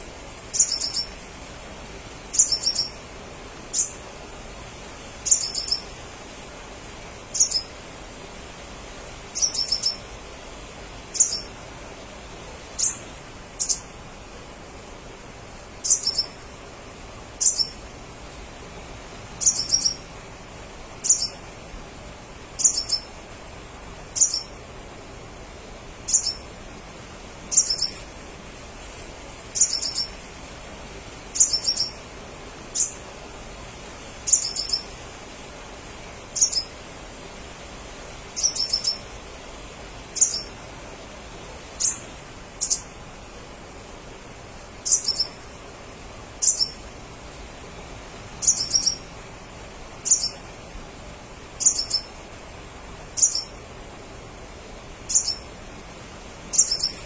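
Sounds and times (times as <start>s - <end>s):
bird high-pitched chirps: 0.5s - 1.2s, 2.3s - 3.0s, 3.7s - 4.0s, 5.2s - 5.8s, 7.3s - 7.7s, 9.4s - 10.0s, 11.2s - 11.5s, 12.8s - 13.0s, 13.6s - 13.9s, 15.8s - 16.4s, 17.4s - 17.8s, 19.4s - 20.1s, 21.0s - 21.4s, 22.6s - 23.1s, 24.2s - 24.5s, 26.1s - 26.4s, 27.5s - 28.0s, 29.6s - 30.2s, 31.4s - 32.0s, 32.8s - 33.0s, 34.3s - 34.9s, 36.4s - 36.7s, 38.4s - 39.0s, 40.2s - 40.5s, 41.8s - 42.0s, 42.6s - 42.9s, 44.8s - 45.4s, 46.4s - 46.8s, 48.4s - 49.1s, 50.0s - 50.4s, 51.6s - 52.1s, 53.2s - 53.5s, 55.1s - 55.5s, 56.5s - 57.0s.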